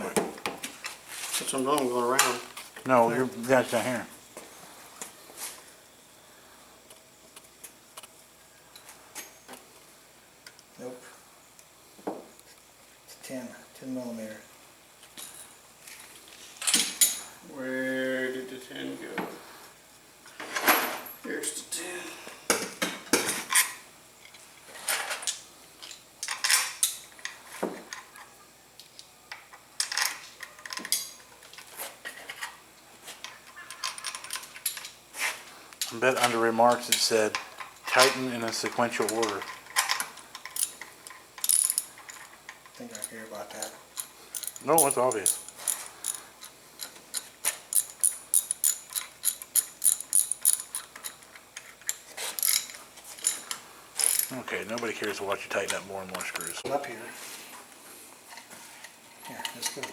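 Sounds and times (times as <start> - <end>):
metal tools clinking: 16.6 - 17.4, 35.8 - 56.8
hand ratchet clicking: 43.0 - 54.3.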